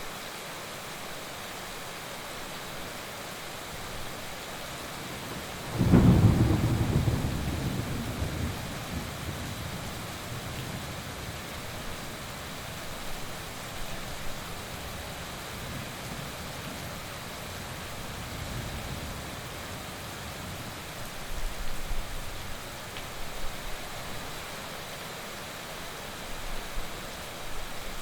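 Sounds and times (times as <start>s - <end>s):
heavy rain falling: 0.0s - 28.0s
low rumble of thunder: 5.1s - 11.4s, 18.0s - 20.8s.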